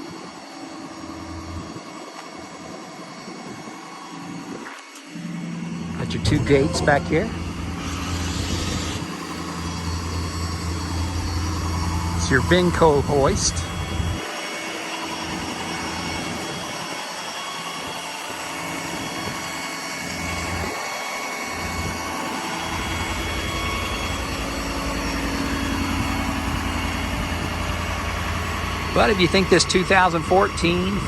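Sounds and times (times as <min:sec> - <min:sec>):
diesel truck engine idling: 0:05.8 - 0:14.2, 0:21.5 - 0:31.0.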